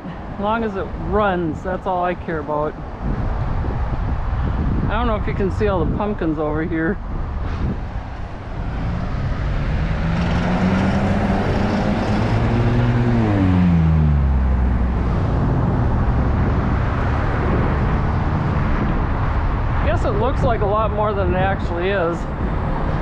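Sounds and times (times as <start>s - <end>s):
road and wind noise: 0.0s - 23.0s
car passing by: 7.4s - 20.9s.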